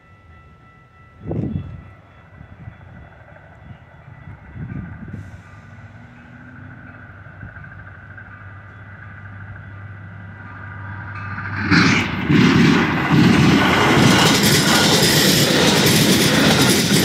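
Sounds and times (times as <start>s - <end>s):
train approaching on rails: 0.0s - 17.0s.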